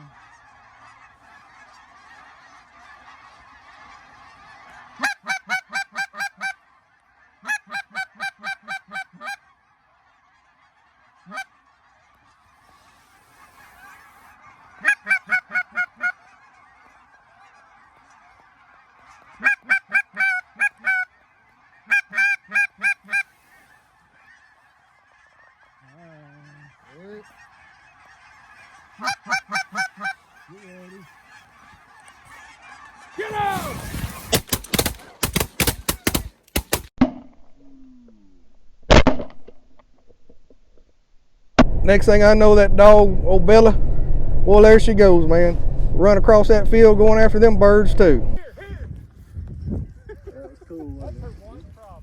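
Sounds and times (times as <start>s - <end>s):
geese honking: 0.0s - 36.9s, 41.9s - 43.7s, 44.5s - 49.3s
loud crack: 33.2s - 37.2s
sharp cracks and clatter: 33.8s - 37.4s.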